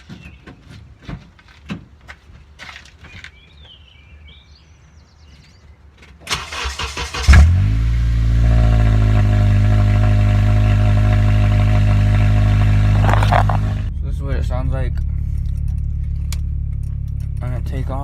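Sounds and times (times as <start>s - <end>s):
loud car engine idling: 7.3s - 18.0s
starter cranking: 12.9s - 13.9s.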